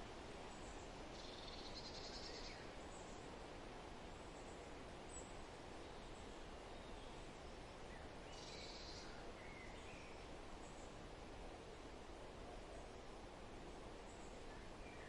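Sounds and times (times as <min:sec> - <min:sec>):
outdoor background hiss: 0:00.0 - 0:15.0
faint bird calls: 0:01.1 - 0:03.2, 0:08.3 - 0:10.2.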